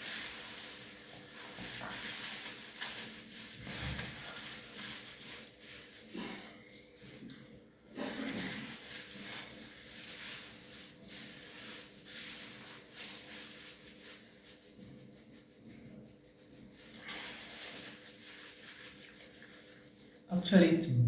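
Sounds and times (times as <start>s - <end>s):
hands rubbing hair: 8.5s - 20.7s.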